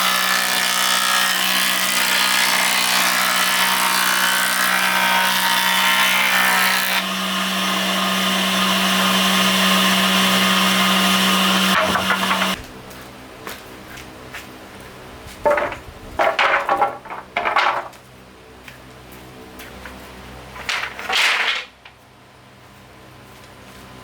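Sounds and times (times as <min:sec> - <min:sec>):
power tool cutting wood: 0:00.0 - 0:12.6.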